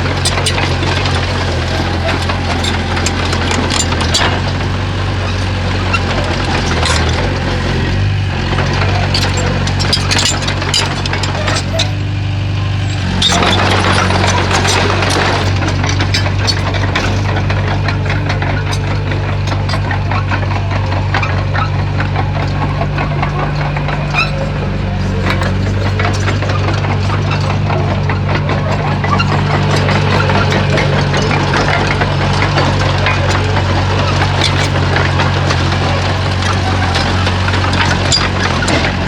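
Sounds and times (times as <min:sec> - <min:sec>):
bulldozer diesel engine running: 0:00.0 - 0:39.0
sharp metal clanks and knocks: 0:08.6 - 0:12.1, 0:12.9 - 0:39.0.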